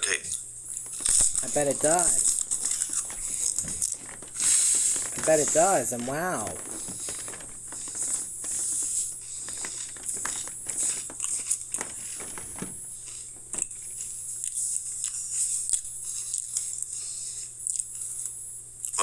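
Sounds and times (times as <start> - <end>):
crisps being crunched: 0.7 - 13.8.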